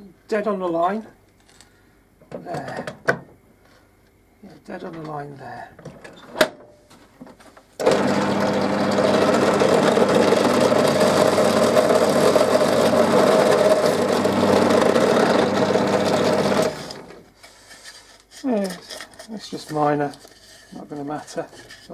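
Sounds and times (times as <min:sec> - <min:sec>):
bandsaw cutting wood: 0:07.8 - 0:17.2.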